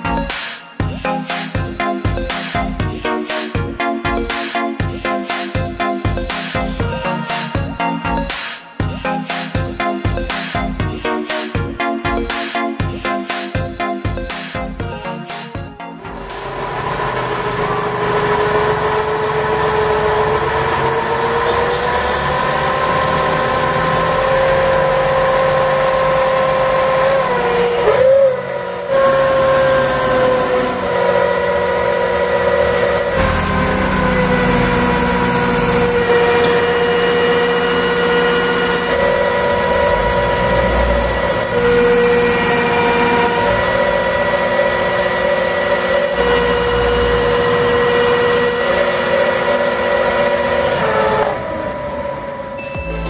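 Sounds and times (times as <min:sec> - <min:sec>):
small motor whining: 0:16.0 - 0:52.6.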